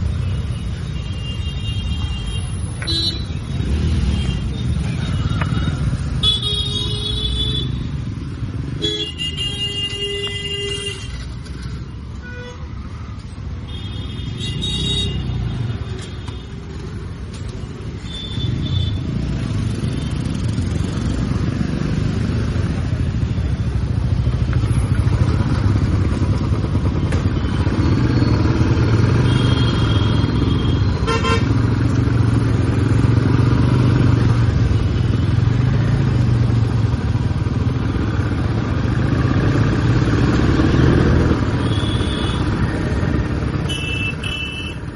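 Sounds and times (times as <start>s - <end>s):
vehicle horns: 0.6s - 7.8s, 8.8s - 11.3s, 13.6s - 16.6s, 28.8s - 31.6s, 41.4s - 44.9s.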